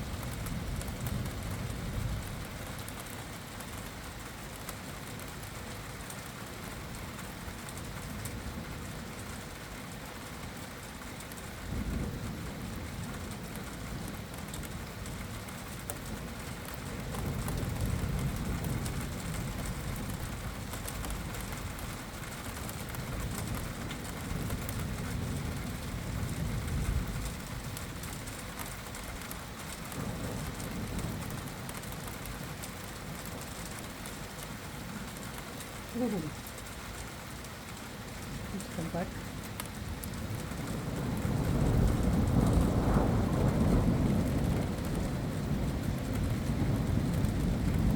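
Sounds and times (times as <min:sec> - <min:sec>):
steady rain falling: 0:00.0 - 0:47.9
low thunder rumbles: 0:11.6 - 0:22.2, 0:22.8 - 0:35.2, 0:38.0 - 0:47.9.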